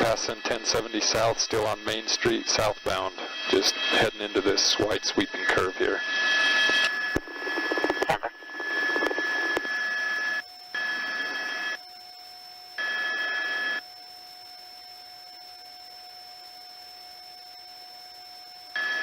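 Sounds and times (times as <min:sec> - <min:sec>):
garbled radio voice: 0:00.0 - 0:06.1, 0:06.7 - 0:09.6
radio channel hiss: 0:00.0 - 0:11.8
faint steady hum: 0:00.0 - 0:19.0
thin constant tone: 0:00.0 - 0:19.0.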